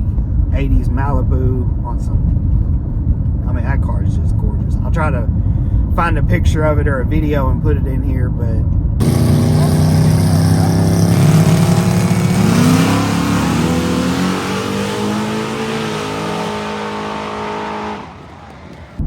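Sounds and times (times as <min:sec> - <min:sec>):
racing car engine accelerating: 0:09.0 - 0:19.0.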